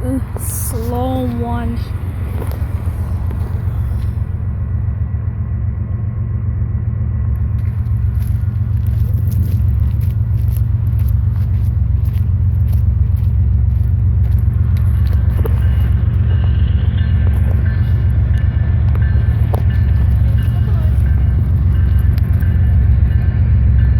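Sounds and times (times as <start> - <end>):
freight train rumbling past: 0.0 - 23.9
train wheels clicking and rattling: 7.3 - 23.9.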